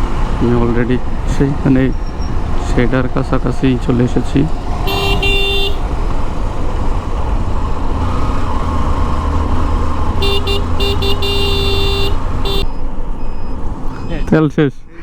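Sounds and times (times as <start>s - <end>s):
motorcycle engine rumble: 0.0s - 14.3s
vehicle horn beeping: 4.8s - 5.9s, 10.2s - 13.4s.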